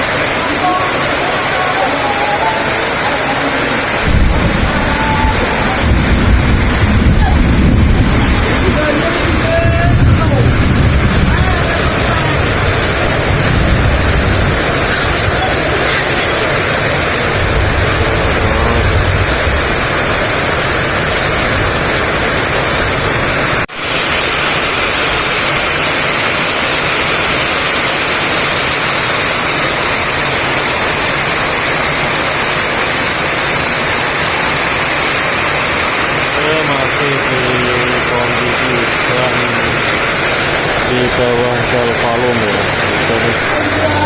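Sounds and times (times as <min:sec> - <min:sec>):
heavy rain pouring: 0:00.0 - 0:44.0
wind gusts rumbling: 0:03.7 - 0:23.6.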